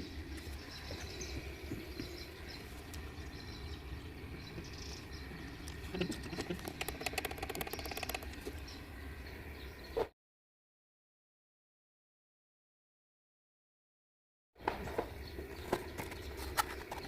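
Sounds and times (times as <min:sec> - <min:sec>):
steady low hum: 0:00.0 - 0:10.1
fast mechanical clicks: 0:06.2 - 0:08.5.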